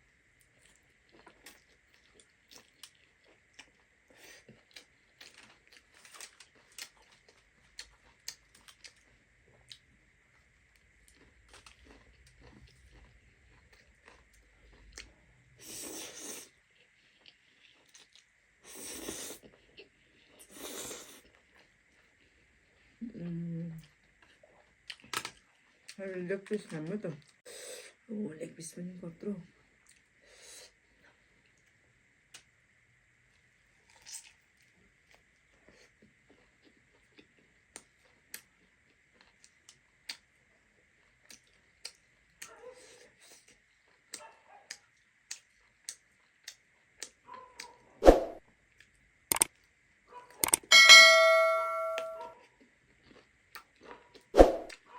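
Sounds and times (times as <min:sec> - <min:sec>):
chewing: 0:00.4 - 0:09.9, 0:10.7 - 0:26.0, 0:33.8 - 0:40.3, 0:41.0 - 0:47.8, 0:52.6 - 0:54.3
mouth clicks and smacks chewing: 0:41.2 - 0:42.6, 0:43.2 - 0:47.8, 0:48.8 - 0:49.5.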